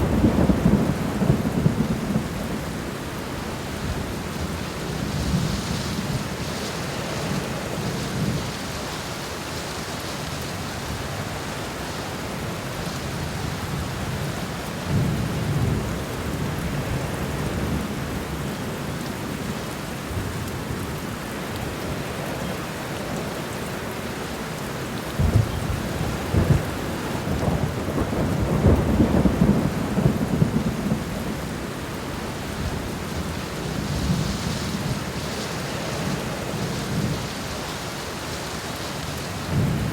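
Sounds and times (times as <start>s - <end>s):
thunder rumbling: 0.0s - 2.8s, 25.1s - 37.8s, 39.4s - 39.9s
rain on ground and leaves: 0.0s - 39.9s.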